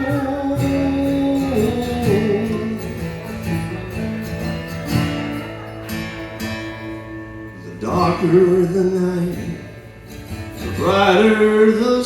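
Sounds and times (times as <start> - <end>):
person singing: 0.0 - 3.4
guitar playing chords: 0.0 - 12.0.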